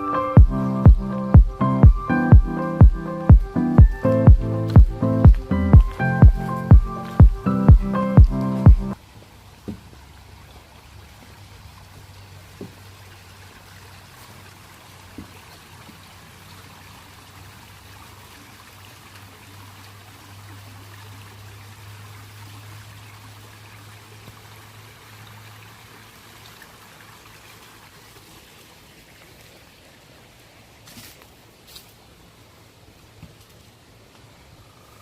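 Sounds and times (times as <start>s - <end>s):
low hum: 0.0s - 9.0s
water trickling: 0.0s - 35.0s.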